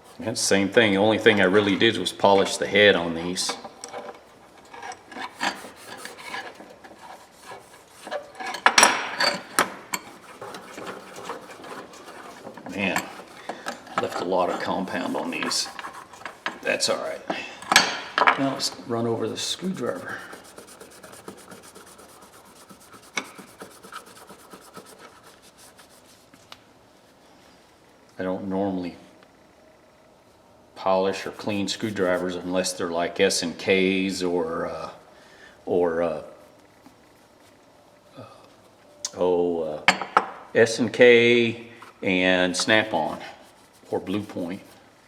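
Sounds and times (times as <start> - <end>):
wrenches rubbing and scraping: 3.5 - 26.3, 31.1 - 32.4, 42.5 - 44.8.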